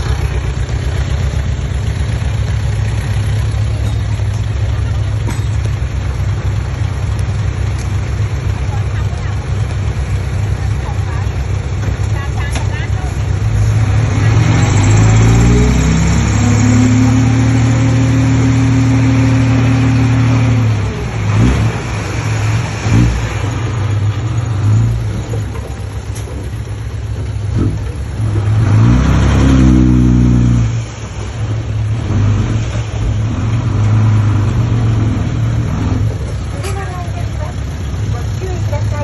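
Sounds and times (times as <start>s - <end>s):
bulldozer diesel engine under load: 0.0s - 39.0s.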